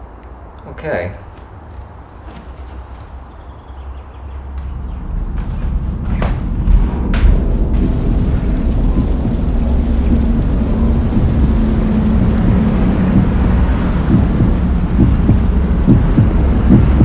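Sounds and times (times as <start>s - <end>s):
faint steady hum: 0.0s - 17.0s
low rumbling drone: 3.1s - 17.0s
faint high ticks: 12.3s - 17.0s.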